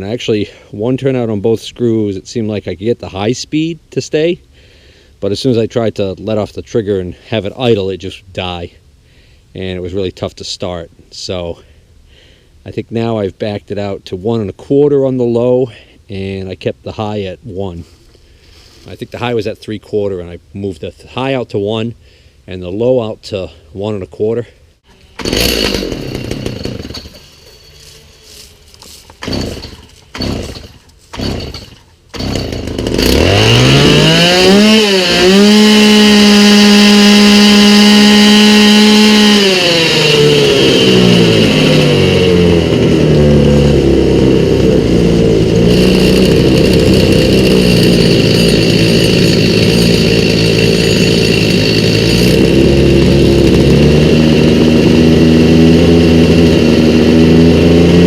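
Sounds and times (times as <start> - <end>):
chainsaw pull-start yanks: 24.9 - 58.0
chainsaw engine revving and idling: 25.0 - 58.0.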